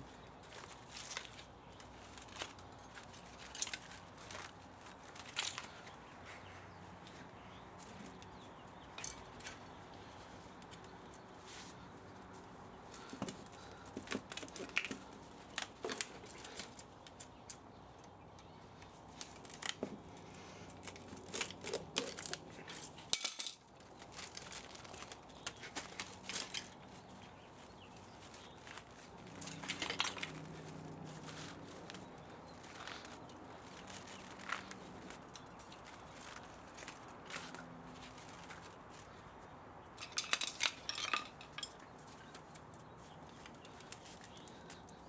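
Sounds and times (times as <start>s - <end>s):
metal tools clinking: 0.6s - 6.0s, 8.8s - 9.7s, 20.8s - 24.8s, 29.3s - 30.7s, 40.0s - 42.5s.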